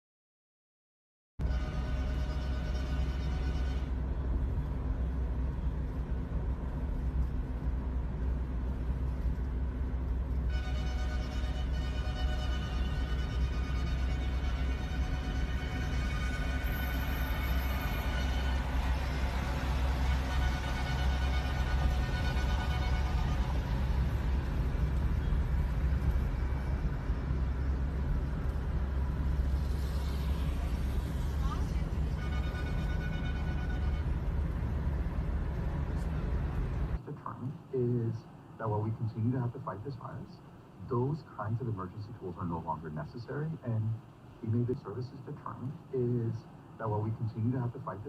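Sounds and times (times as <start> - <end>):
car driving rumble: 1.4 - 48.0
road noise: 1.4 - 48.0.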